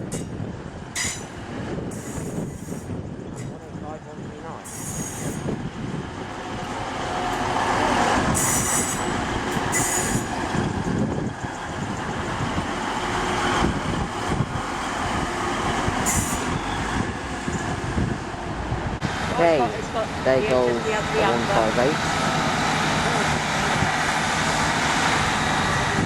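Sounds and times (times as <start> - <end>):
train rumbling: 0.0 - 26.0
high-pitched wheel squeals: 4.7 - 5.5, 8.4 - 9.1, 9.7 - 10.3, 16.0 - 17.1.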